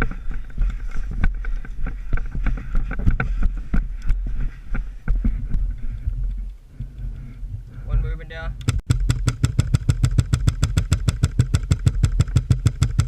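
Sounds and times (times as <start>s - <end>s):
knocks and rustling: 8.6s - 13.0s.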